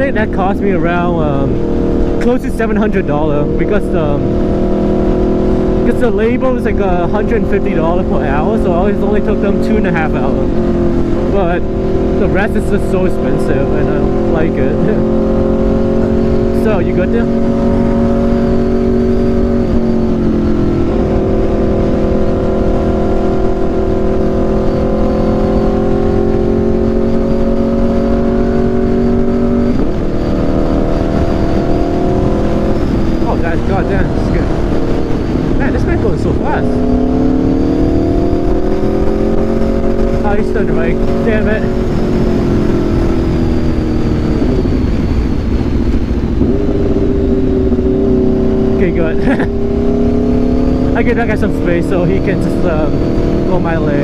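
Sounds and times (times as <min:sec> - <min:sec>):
motorcycle engine running: 0:00.0 - 0:54.0
wind on microphone: 0:00.0 - 0:54.0.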